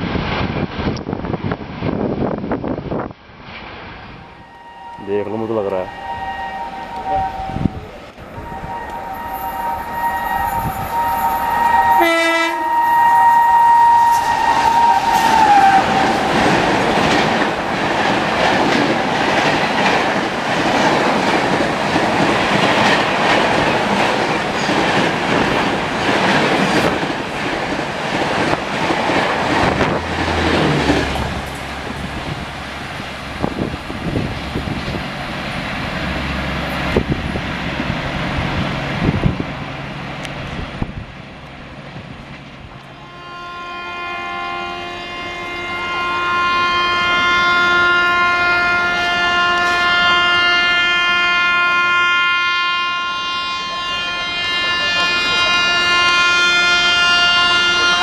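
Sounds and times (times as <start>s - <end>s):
train rushing past: 0.0s - 58.0s
locomotive two-tone horn: 4.2s - 16.5s, 29.5s - 32.4s, 42.9s - 58.0s.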